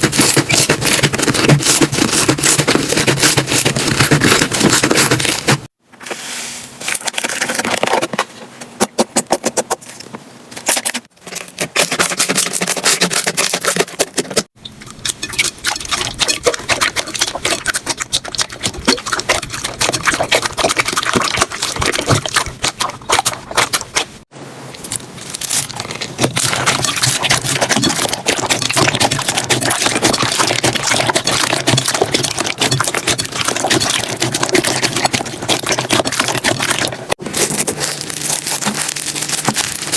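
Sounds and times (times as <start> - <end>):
slime crackling and popping: 24.8 - 39.9.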